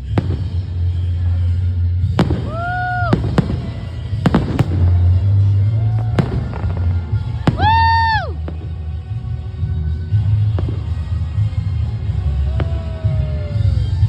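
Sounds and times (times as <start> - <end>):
fireworks shells bursting: 0.0 - 8.9.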